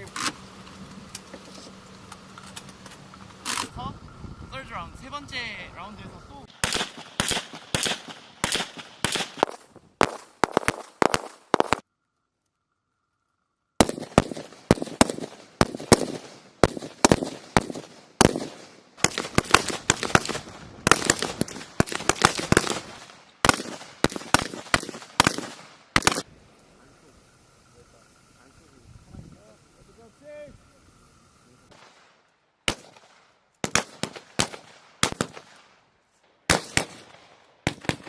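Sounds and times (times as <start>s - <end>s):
rifle shots with echo: 6.6s - 11.8s, 13.8s - 26.2s, 32.7s - 35.7s, 36.5s - 38.0s.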